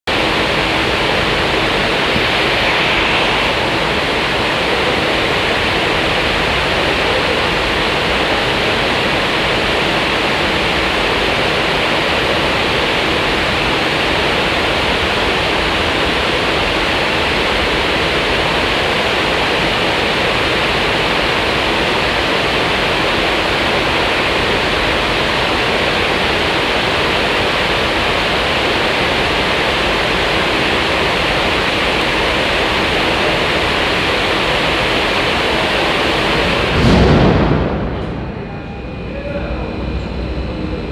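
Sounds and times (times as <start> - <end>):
loud rush of air: 0.1 - 24.9, 34.4 - 40.9
faint steady hum: 0.1 - 40.9.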